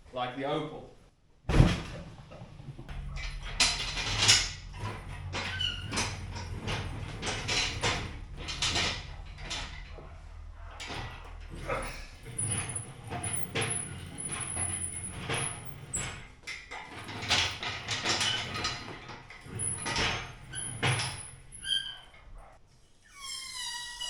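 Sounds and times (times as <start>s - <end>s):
tools knocking and rattling: 1.5s - 21.8s
high squeaks: 23.1s - 24.0s.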